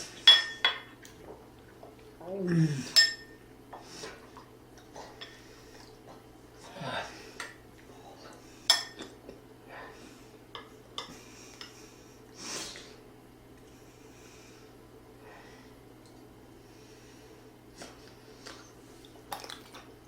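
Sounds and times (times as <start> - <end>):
utensils clinking against dishes: 0.2 - 0.9, 2.9 - 3.4.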